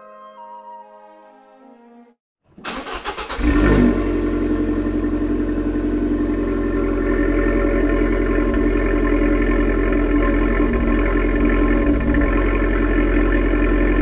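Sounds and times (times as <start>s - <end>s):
starter motor cranking: 2.6s - 4.0s, 7.0s - 14.0s
car engine revving and idling: 2.7s - 14.0s.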